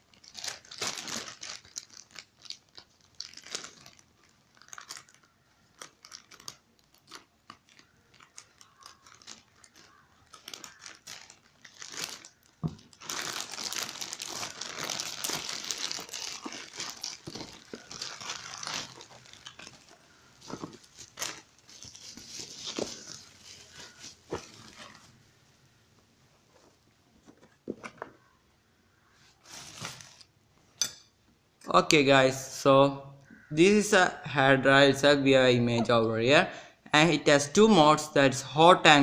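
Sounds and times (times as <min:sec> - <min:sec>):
packaging crinkling and tearing: 0:00.0 - 0:25.2, 0:29.4 - 0:30.3
packaging rustling and tapping: 0:05.8 - 0:25.1, 0:26.6 - 0:28.2.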